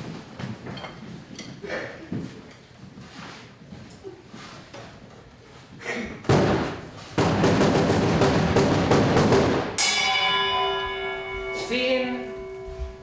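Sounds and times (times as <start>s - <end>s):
drum roll: 7.2s - 10.4s.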